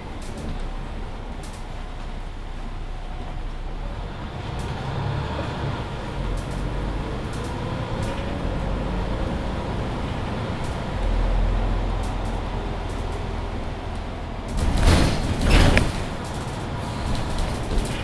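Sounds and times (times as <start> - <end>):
bus drivetrain and road rumble: 0.0 - 18.0
light rattles: 5.9 - 18.0.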